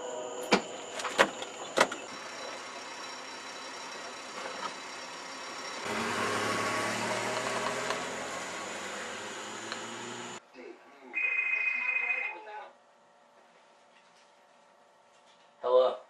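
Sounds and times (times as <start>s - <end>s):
car engine running: 2.0s - 10.4s.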